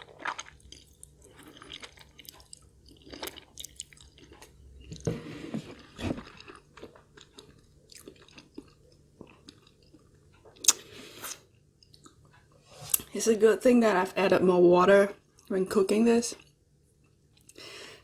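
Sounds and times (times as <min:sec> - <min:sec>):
person chewing food: 0:00.0 - 0:13.1.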